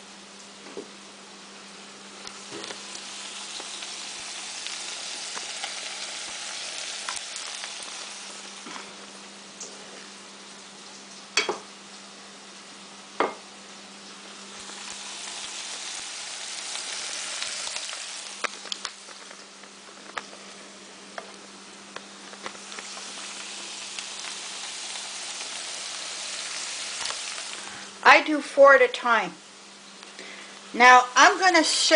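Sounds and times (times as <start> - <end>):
hot oil sizzling: 1.5 - 28.3, 29.8 - 31.9
small pops and clicks: 18.4 - 20.2.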